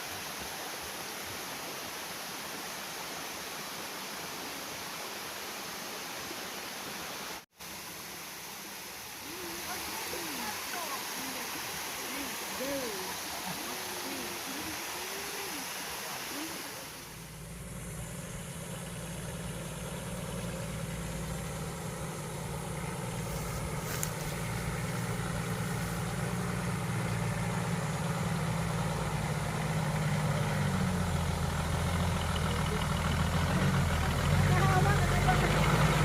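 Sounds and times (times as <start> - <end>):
rushing water: 0.0 - 36.0
vehicle engine humming: 9.2 - 36.0.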